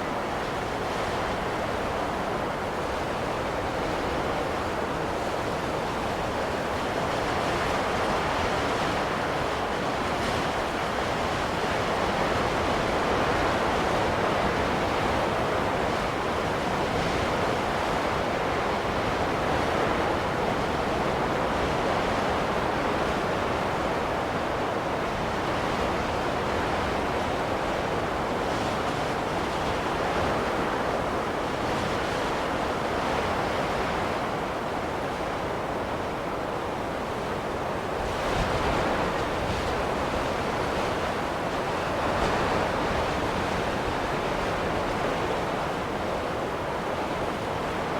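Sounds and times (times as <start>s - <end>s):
rushing snowstorm wind: 0.0s - 47.9s.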